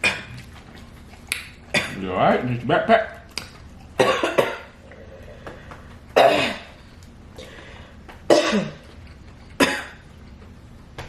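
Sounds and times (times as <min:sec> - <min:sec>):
person coughing hard: 0:00.0 - 0:00.3, 0:01.7 - 0:02.0, 0:04.0 - 0:04.8, 0:06.2 - 0:06.8, 0:08.3 - 0:08.8, 0:09.6 - 0:10.0.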